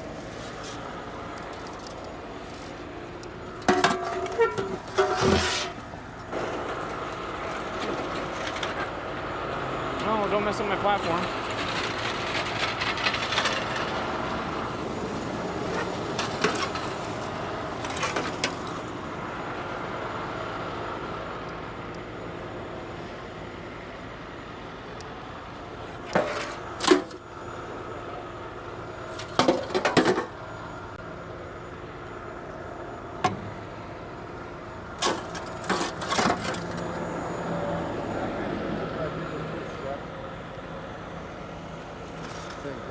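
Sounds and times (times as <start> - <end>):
truck engine idling: 0.0 - 42.9
metal knocks and clanks: 3.6 - 5.8.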